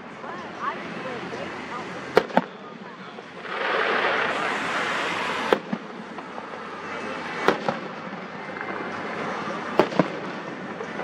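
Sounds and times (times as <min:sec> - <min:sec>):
fireworks exploding: 0:02.1 - 0:11.0
steady hiss: 0:02.7 - 0:10.9.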